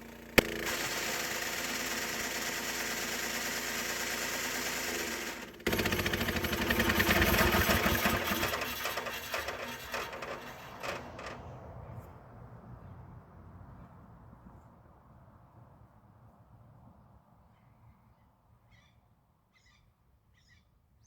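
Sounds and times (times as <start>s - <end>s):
bandsaw sawmill cutting log: 0.0s - 11.6s
loud clatter of saw blade: 0.0s - 11.7s.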